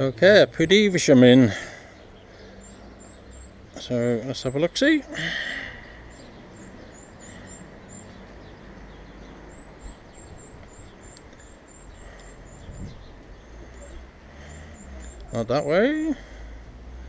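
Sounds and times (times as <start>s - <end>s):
outdoor background noise: 0.0s - 17.0s
small bird chirping: 1.9s - 15.5s.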